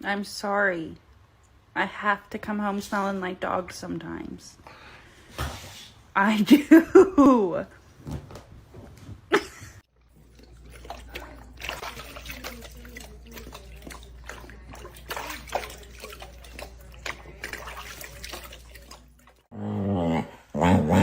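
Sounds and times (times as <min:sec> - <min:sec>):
water splashing and trickling: 0:09.9 - 0:19.5.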